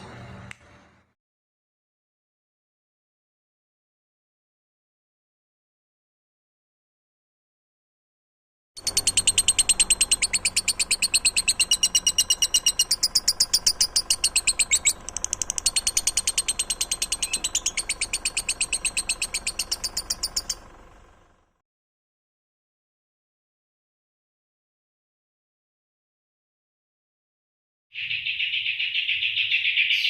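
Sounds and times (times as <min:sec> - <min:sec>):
songbird trilling: 0:08.8 - 0:20.6, 0:28.0 - 0:30.0.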